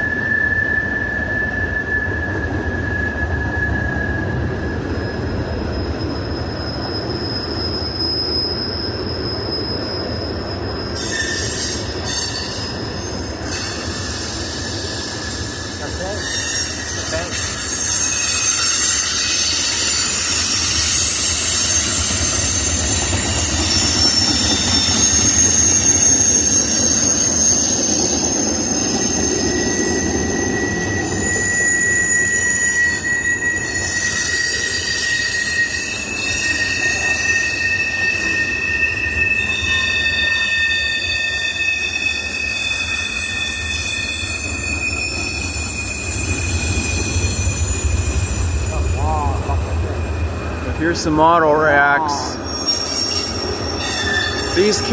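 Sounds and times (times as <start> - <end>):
freight train rolling past: 0.0 - 54.9
high-pitched wheel squeals: 0.0 - 54.9.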